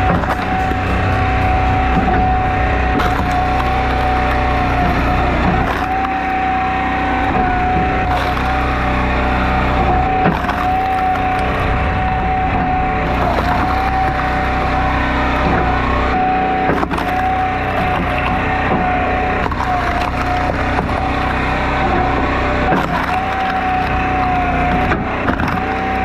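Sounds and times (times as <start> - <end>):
wood splitting cracks: 0.0 - 6.4, 7.1 - 11.6, 16.6 - 26.0
log splitter engine running: 0.0 - 26.0.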